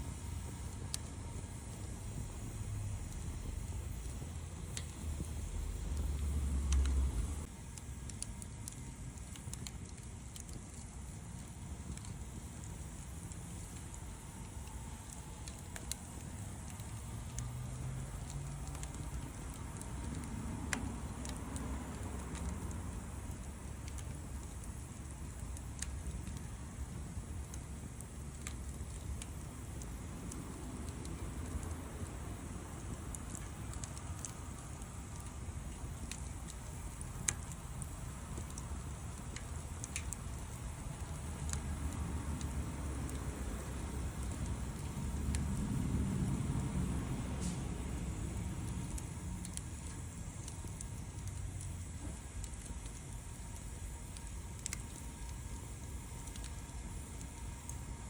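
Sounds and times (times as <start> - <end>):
low rumble: 0.0 - 7.6
wood fire crackling: 0.0 - 58.0.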